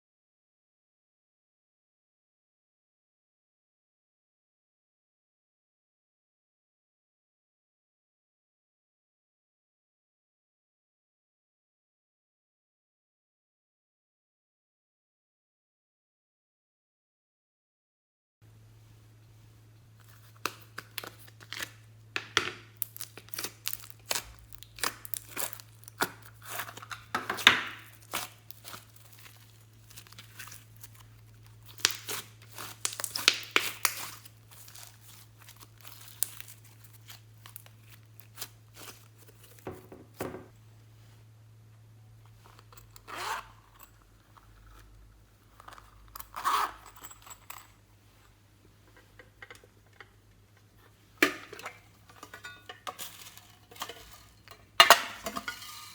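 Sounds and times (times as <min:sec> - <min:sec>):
sharp crackling and tearing: 0:22.8 - 0:39.6.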